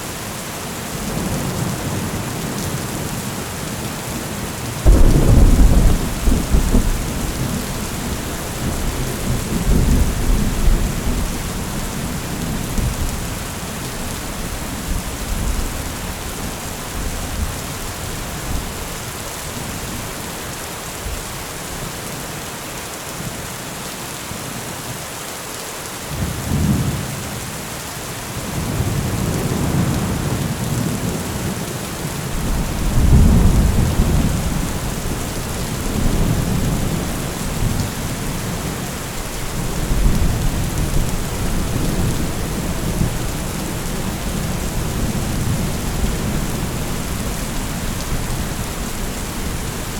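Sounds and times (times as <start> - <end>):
steady rain hissing: 0.0 - 49.9
rolling thunder: 4.8 - 13.5, 32.3 - 49.9.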